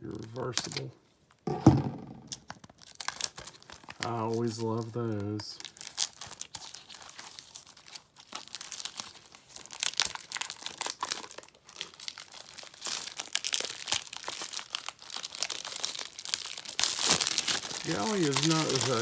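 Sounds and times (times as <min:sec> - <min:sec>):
plastic wrap crinkling and tearing: 0:02.3 - 0:19.0.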